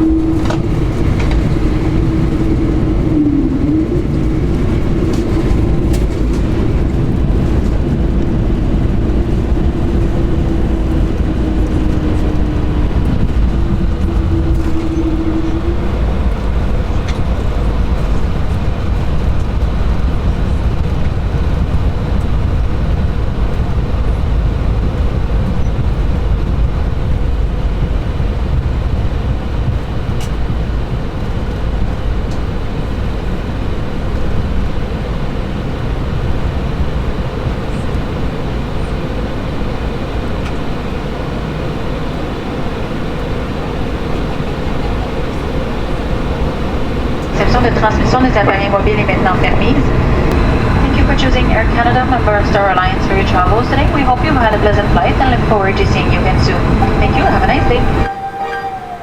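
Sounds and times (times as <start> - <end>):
jet engine cabin rumble: 0.0 - 59.0
thin humming tone: 43.3 - 59.0.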